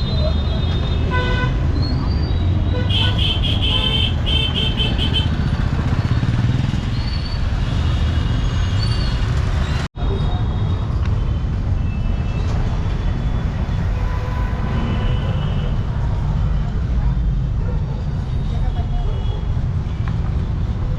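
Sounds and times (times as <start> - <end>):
dense traffic engine rumble: 0.0 - 20.9
vehicle horns honking: 1.1 - 1.6, 2.7 - 5.4.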